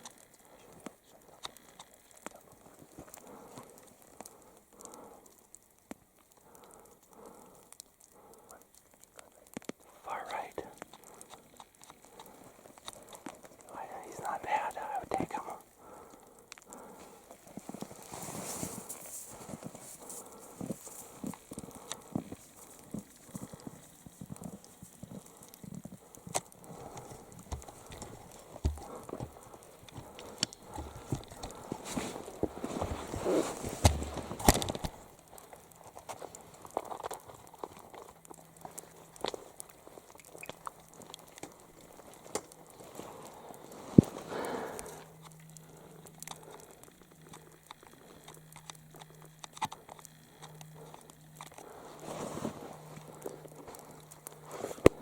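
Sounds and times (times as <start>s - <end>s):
small crackling clicks: 0.0s - 55.0s
faint rustling: 9.2s - 40.1s, 50.1s - 55.0s
irregular footsteps and scuffs: 27.0s - 34.6s.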